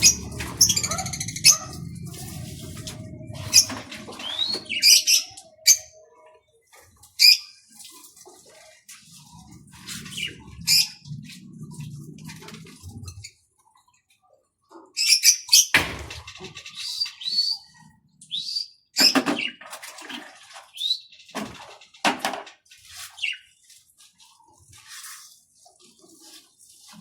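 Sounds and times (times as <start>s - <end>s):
splashing and wing fluttering: 0.0s - 5.4s, 6.7s - 13.5s, 19.0s - 27.0s
small birds chirping and squawking: 0.0s - 19.6s, 20.6s - 22.0s, 23.0s - 23.7s.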